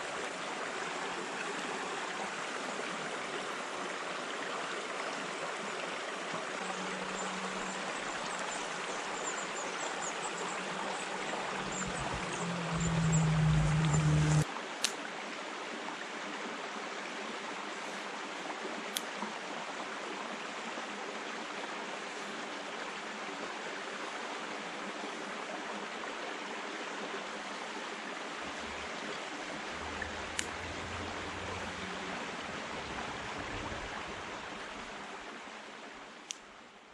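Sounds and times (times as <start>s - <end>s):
stream water rushing: 0.0s - 36.8s
loud low hum: 10.6s - 14.4s.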